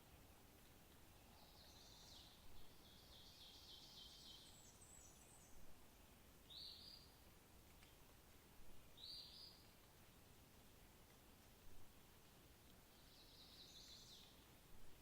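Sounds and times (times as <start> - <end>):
background hiss: 0.0 - 15.0
faint songbird singing: 1.2 - 5.8, 6.4 - 7.2, 8.9 - 9.8, 12.8 - 15.0.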